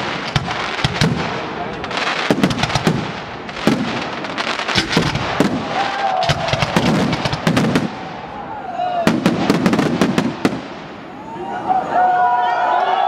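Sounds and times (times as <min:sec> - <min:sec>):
firework shells bursting: 0:00.0 - 0:08.3
fireworks crackling: 0:00.0 - 0:11.4.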